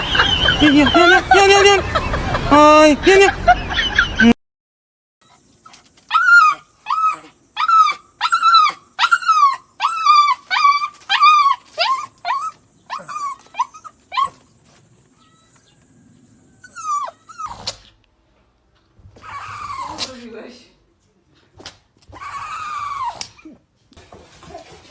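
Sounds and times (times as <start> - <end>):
dog yipping: 5.2 - 14.5, 16.6 - 17.9, 19.2 - 20.2, 22.1 - 23.4.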